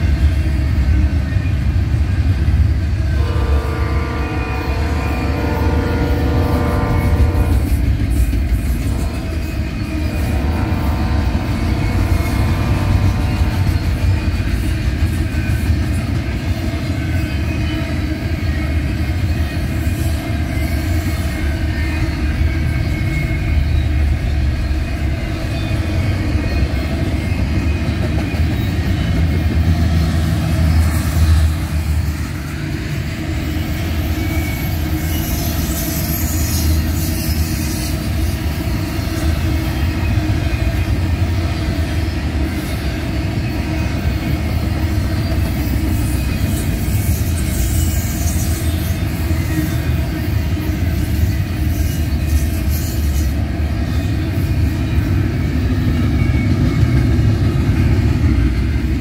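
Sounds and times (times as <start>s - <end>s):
steel wheels rumbling on rails: 0.0s - 59.0s
high-pitched wheel squeal: 33.4s - 40.2s, 44.9s - 55.0s.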